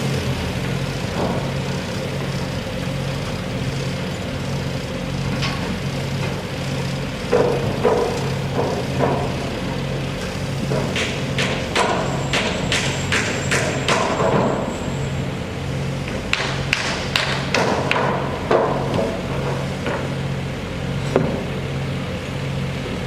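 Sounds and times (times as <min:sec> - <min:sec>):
low machine hum: 0:00.0 - 0:23.0
sharp knocks: 0:10.6 - 0:14.7.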